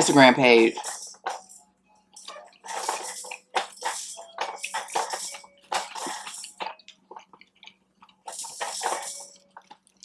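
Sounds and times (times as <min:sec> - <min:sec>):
wet chewing and smacking: 0:06.6 - 0:08.2.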